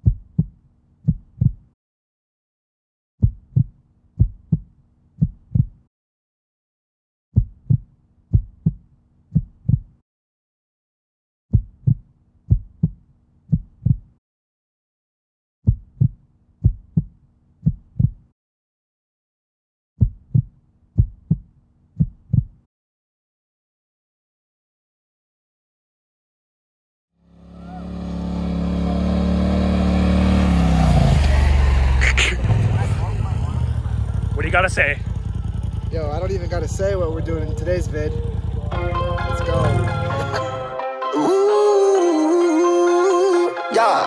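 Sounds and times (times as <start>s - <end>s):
deep bass thumps: 0.0s - 1.8s, 3.2s - 5.9s, 7.4s - 8.8s, 9.4s - 10.0s, 11.5s - 14.2s, 15.7s - 18.3s, 20.0s - 22.6s
low hum: 27.5s - 40.5s.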